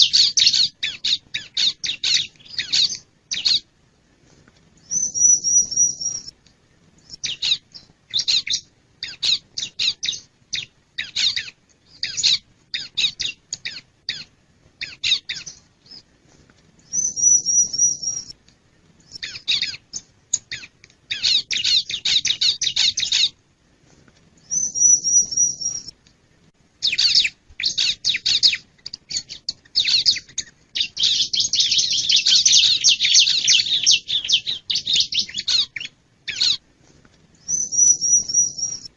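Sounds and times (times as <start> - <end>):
bird singing high chirps: 0.0 - 3.6, 4.8 - 6.3, 7.0 - 16.0, 16.8 - 18.4, 19.0 - 23.4, 24.4 - 26.0, 26.8 - 36.6, 37.4 - 38.9
bird high trill: 4.9 - 6.3, 16.9 - 18.3, 24.5 - 25.9, 26.8 - 36.6, 37.4 - 38.9.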